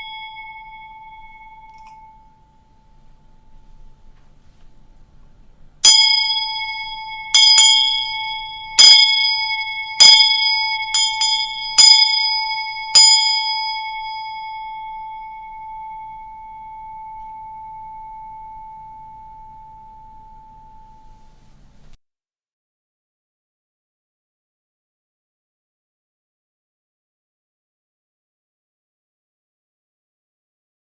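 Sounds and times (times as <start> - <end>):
bell ringing: 0.0 - 4.1, 5.8 - 21.4.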